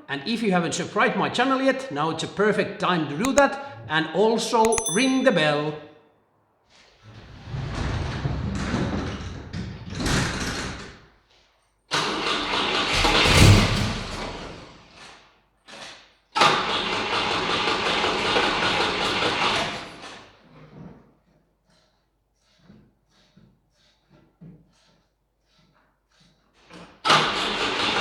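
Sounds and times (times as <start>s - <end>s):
car engine cranking and firing: 12.0s - 14.6s.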